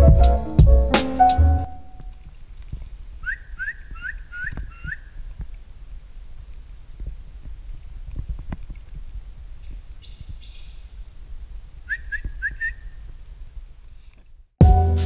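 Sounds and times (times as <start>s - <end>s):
wind rumble on microphone: 2.0s - 13.8s
bird calling and chirping: 3.2s - 5.2s, 9.6s - 10.9s.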